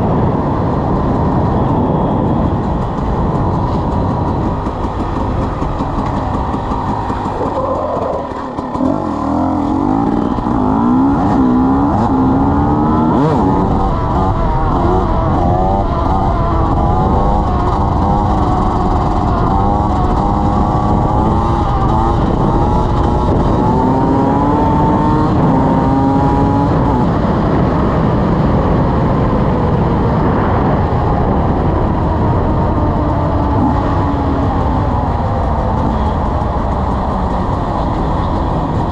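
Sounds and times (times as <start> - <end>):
dirt bike engine revving: 2.7 - 27.2, 32.7 - 38.9.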